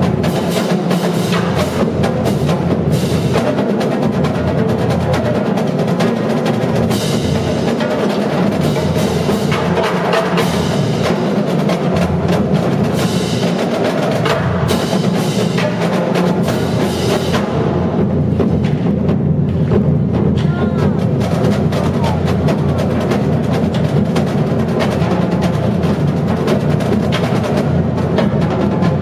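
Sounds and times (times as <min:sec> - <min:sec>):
bass drums pounding: 0:08.4 - 0:29.0.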